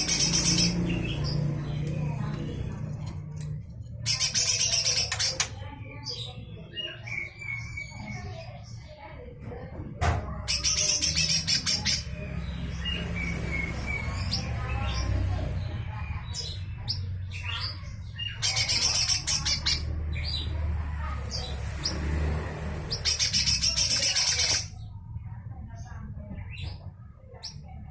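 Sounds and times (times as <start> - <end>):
bird giving harsh rasping calls: 0.0 - 1.8, 4.0 - 5.6, 22.8 - 24.8.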